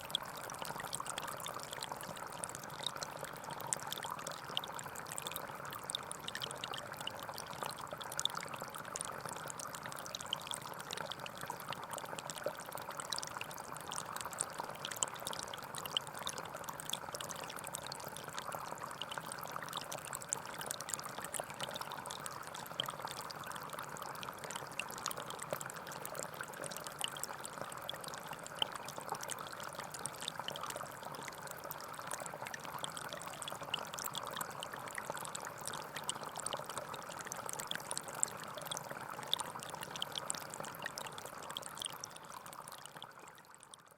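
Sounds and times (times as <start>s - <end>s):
small splashes and drips: 0.0s - 43.9s
stream water burbling: 0.0s - 43.9s.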